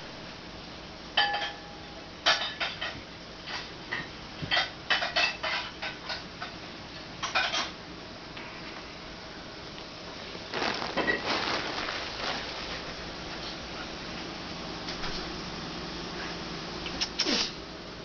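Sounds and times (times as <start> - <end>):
hard objects clinking and clattering: 10.5 - 12.9.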